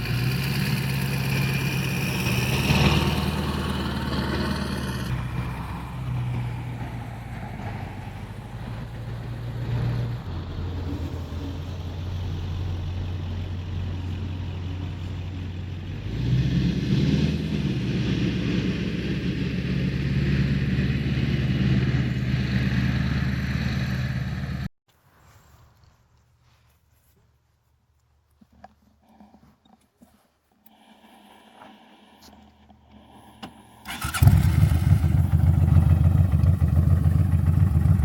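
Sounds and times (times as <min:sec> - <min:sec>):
car engine revving: 0:00.0 - 0:10.8, 0:32.8 - 0:38.0.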